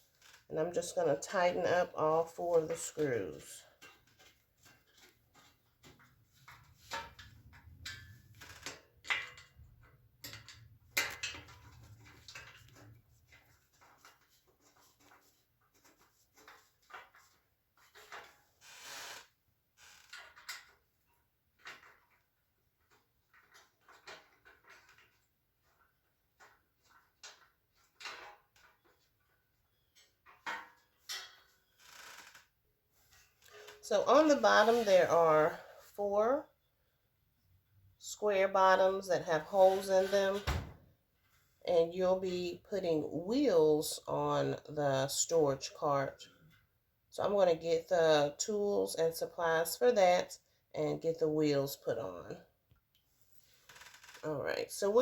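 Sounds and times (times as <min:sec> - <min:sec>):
screwdriver clicks and scrapes on metal: 0:02.5 - 0:18.4.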